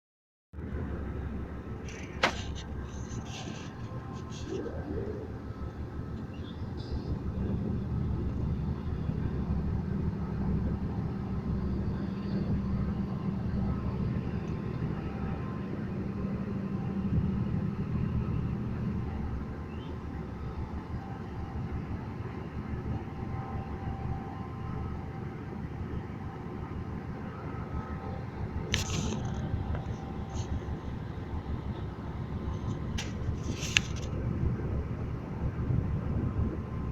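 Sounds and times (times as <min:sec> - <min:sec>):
diesel locomotive droning: 0:00.6 - 0:36.9.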